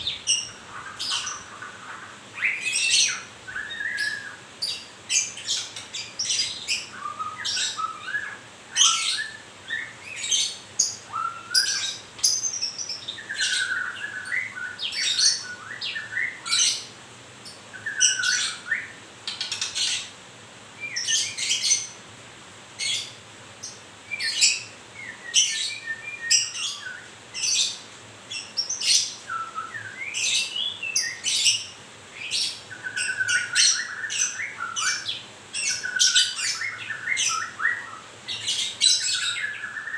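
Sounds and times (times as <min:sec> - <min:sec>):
bird singing whistled phrases: 0:02.4 - 0:04.4, 0:06.7 - 0:10.3, 0:11.1 - 0:12.5, 0:13.2 - 0:16.6, 0:24.1 - 0:27.1, 0:28.6 - 0:31.6, 0:32.2 - 0:39.9.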